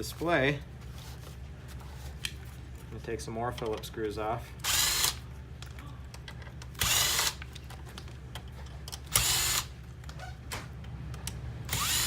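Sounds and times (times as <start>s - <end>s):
power screwdriver running: 4.6s - 5.2s, 6.8s - 7.4s, 9.1s - 9.7s, 11.7s - 12.0s.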